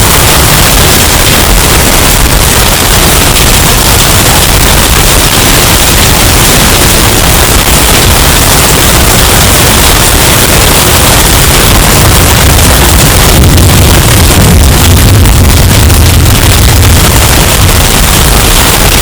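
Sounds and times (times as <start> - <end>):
distorted hurricane wind roar: 0.0 - 19.0.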